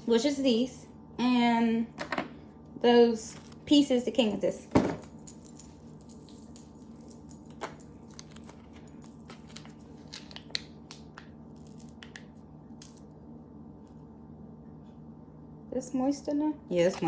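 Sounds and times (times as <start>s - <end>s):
steady low hum: 0.0s - 17.0s
clicks of pieces and packaging: 8.1s - 13.1s.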